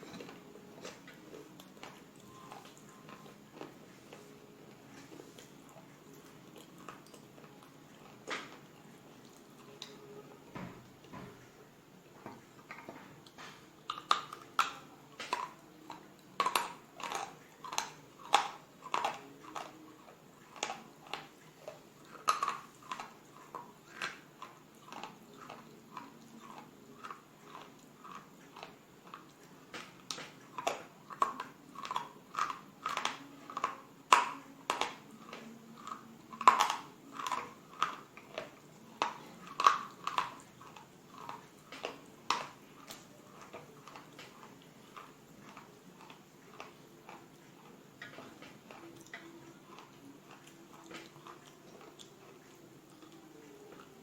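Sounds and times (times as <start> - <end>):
crisp gritty chewing crunches: 0.0 - 10.1, 12.3 - 54.0.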